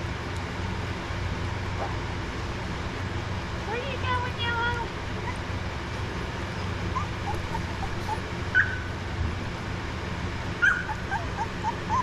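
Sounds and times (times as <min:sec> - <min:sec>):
puppies whimpering: 0:06.5 - 0:08.8, 0:10.6 - 0:12.0
puppy yelps: 0:06.6 - 0:08.9, 0:10.6 - 0:12.0.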